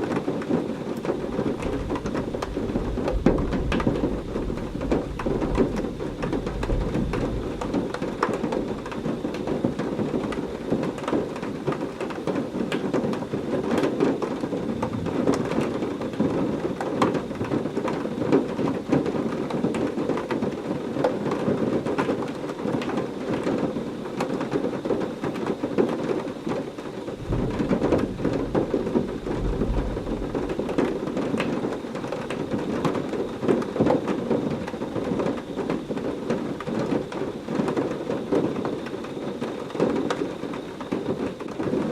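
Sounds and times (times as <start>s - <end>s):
heavy rain falling: 0.0s - 41.9s
thunder rumble: 1.0s - 11.5s, 14.2s - 18.6s, 27.1s - 38.9s.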